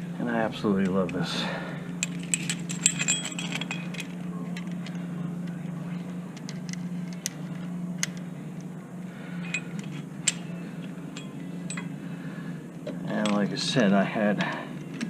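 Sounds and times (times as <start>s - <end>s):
steady low hum: 0.0s - 15.0s
metal parts clinking: 1.9s - 5.6s, 9.4s - 12.0s, 13.0s - 13.8s.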